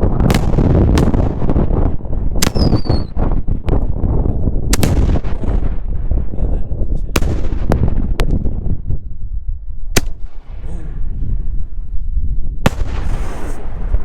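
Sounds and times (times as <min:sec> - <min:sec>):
firework shells bursting: 0:00.0 - 0:04.0, 0:04.6 - 0:06.1, 0:09.9 - 0:10.7, 0:12.7 - 0:14.0
low rumbling booms: 0:00.0 - 0:14.0.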